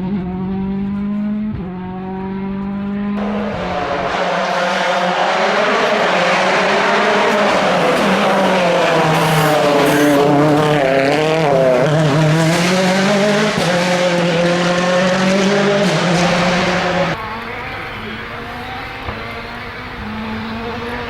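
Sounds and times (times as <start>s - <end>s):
rally car engine running hard: 0.0s - 21.0s.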